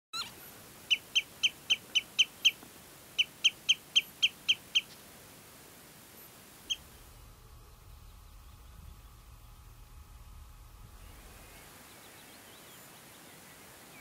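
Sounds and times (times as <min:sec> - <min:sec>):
bird calling sharp notes: 0:00.2 - 0:02.6.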